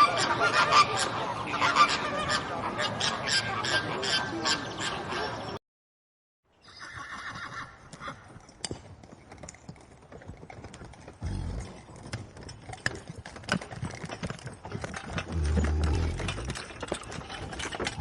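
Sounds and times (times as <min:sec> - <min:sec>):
horse whinnying: 0:06.6 - 0:08.2, 0:15.3 - 0:16.6
hooves clopping: 0:06.7 - 0:18.0.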